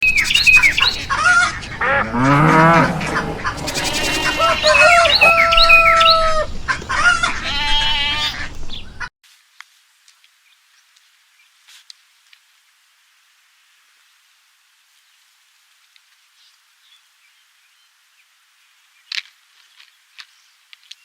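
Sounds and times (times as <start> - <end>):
animal calls: 0.0 - 9.1
birds calling: 0.0 - 9.1.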